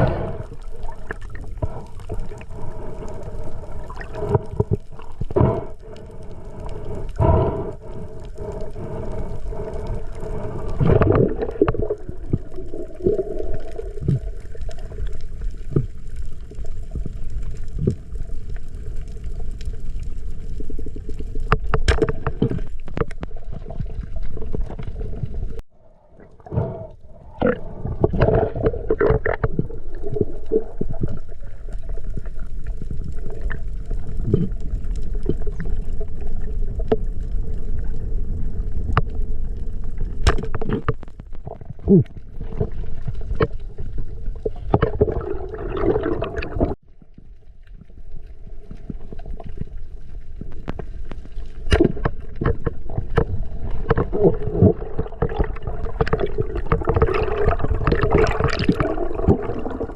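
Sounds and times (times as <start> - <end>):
underwater water rushing: 0.0 - 46.8, 47.8 - 59.9
underwater clicks and knocks: 10.8 - 12.5, 21.4 - 25.0, 27.4 - 31.2, 40.1 - 46.8, 50.4 - 59.8.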